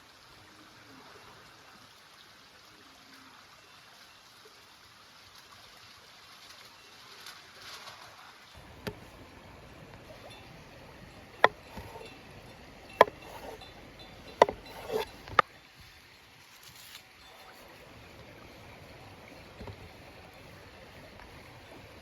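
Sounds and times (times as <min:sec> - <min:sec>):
soft clatters: 0:08.6 - 0:15.5
sharp knocks: 0:11.3 - 0:12.1, 0:12.9 - 0:13.6, 0:14.2 - 0:15.4.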